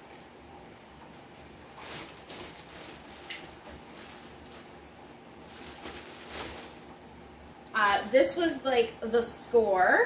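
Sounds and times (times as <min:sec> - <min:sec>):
rustling handling noises: 0:00.5 - 0:08.3.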